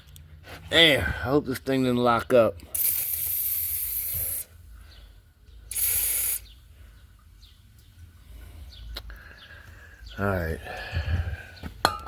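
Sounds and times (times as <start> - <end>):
aerosol can spraying: 2.8 - 4.5, 5.7 - 6.4.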